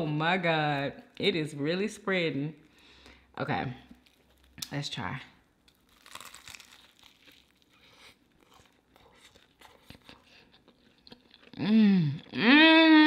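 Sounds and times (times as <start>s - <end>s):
person chewing: 3.9s - 4.7s, 5.6s - 12.4s
taco shell crunch: 3.9s - 4.8s, 5.6s - 12.4s.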